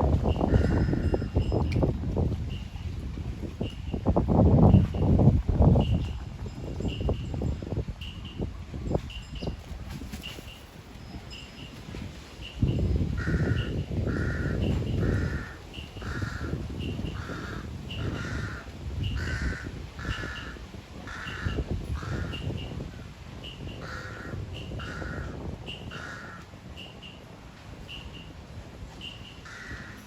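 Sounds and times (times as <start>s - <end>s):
crow cawing: 0.5s - 1.1s, 13.2s - 16.6s, 17.2s - 22.4s, 23.8s - 26.4s, 29.4s - 30.0s.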